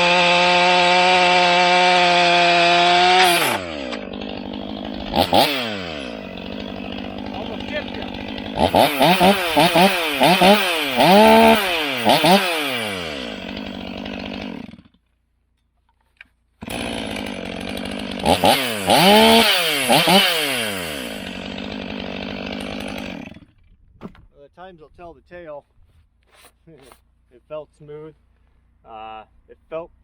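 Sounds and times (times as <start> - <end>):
chainsaw idling and revving: 0.0 - 15.3, 16.6 - 23.7.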